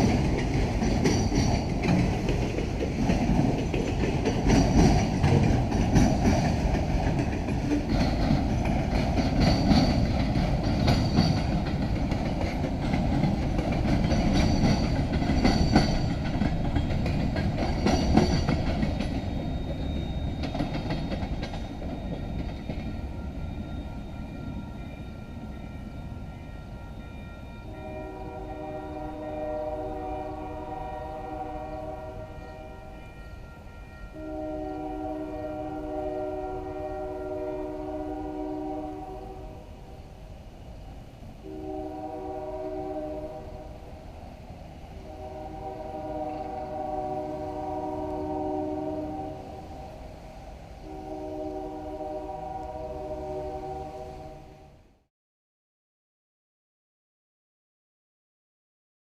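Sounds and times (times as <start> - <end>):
train wheels clattering: 0.0 - 27.8
high wheel squeals: 17.8 - 25.5.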